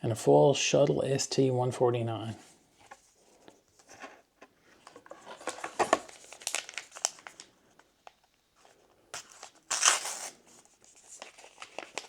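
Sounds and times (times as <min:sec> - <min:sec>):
foil wrapper crinkling: 0:05.4 - 0:07.5, 0:09.2 - 0:12.0.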